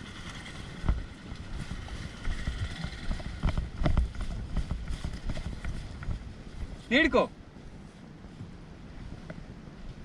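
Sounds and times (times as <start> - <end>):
off-road vehicle rumble: 0.0 - 10.0
wind buffeting microphone: 0.0 - 10.0.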